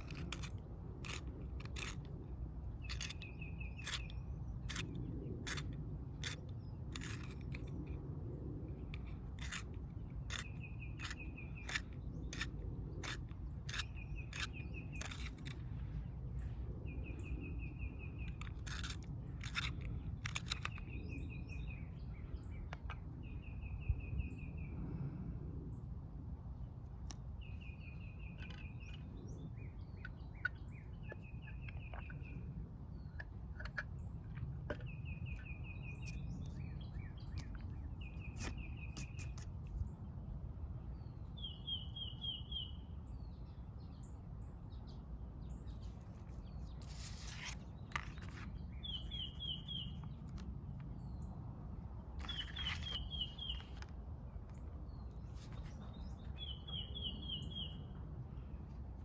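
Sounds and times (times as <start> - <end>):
low background rumble: 0.0 - 59.0
songbird trilling: 45.8 - 50.2, 52.2 - 53.9, 54.9 - 57.9.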